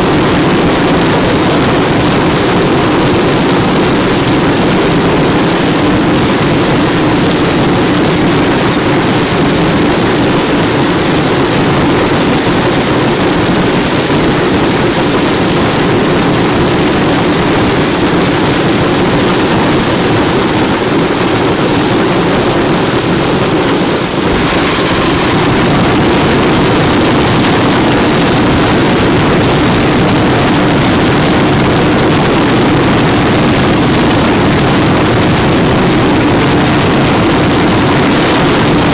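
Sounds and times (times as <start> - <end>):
fireworks barrage: 17.6 - 38.9.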